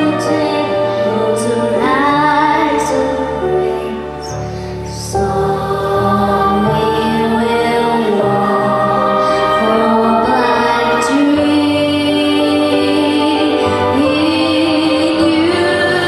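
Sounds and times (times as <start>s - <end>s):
instrumental accompaniment: 0.0s - 16.0s
person singing: 0.0s - 16.0s.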